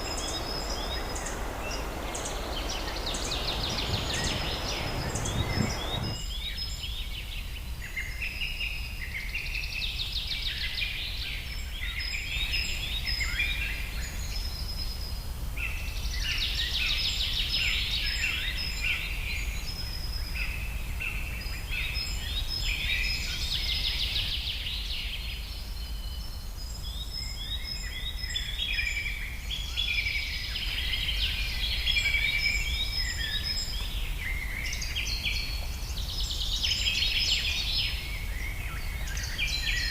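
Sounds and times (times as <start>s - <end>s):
flock of birds chirping: 0.0s - 6.2s
low rumble: 0.0s - 6.2s.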